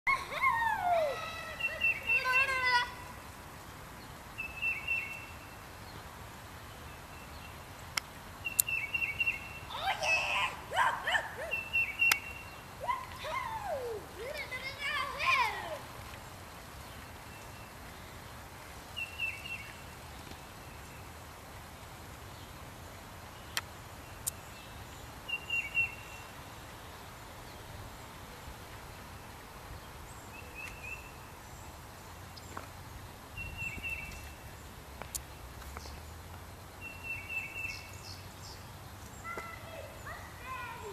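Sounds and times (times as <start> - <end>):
child shouting: 0.1 - 3.1, 9.7 - 11.6, 12.8 - 15.9, 39.3 - 40.9
bird chirping: 0.1 - 3.2, 4.0 - 15.6, 18.9 - 20.0, 23.3 - 26.4, 29.8 - 32.6, 33.3 - 40.9
low background noise: 0.1 - 40.9
songbird singing: 0.1 - 40.9.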